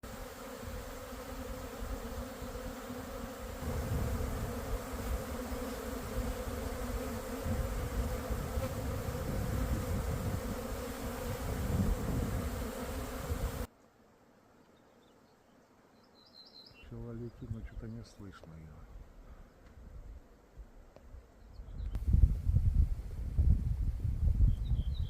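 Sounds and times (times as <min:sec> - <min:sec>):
honeybees buzzing: 0:00.0 - 0:15.9.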